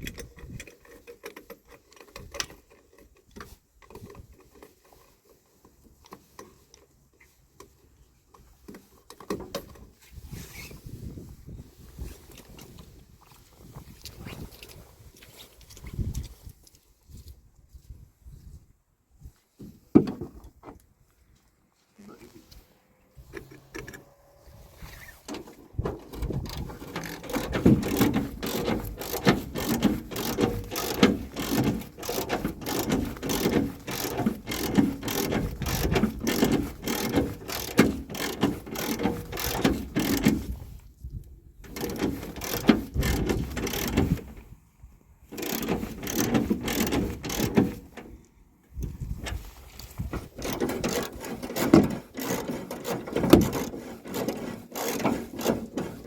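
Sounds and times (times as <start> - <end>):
mechanical clattering and ratcheting: 0.0 - 5.1, 25.0 - 40.7, 41.6 - 44.4, 45.3 - 48.2, 48.8 - 56.0.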